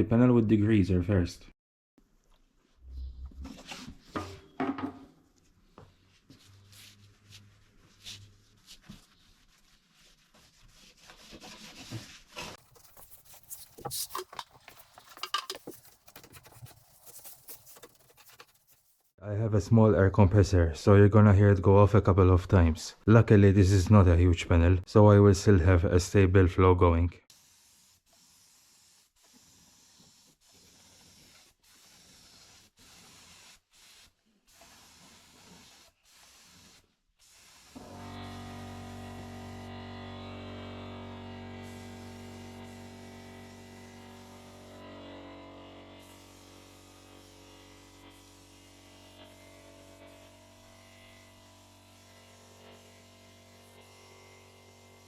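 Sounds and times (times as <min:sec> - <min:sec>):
cloth rubbing on metal panel: 0:06.0 - 0:19.2.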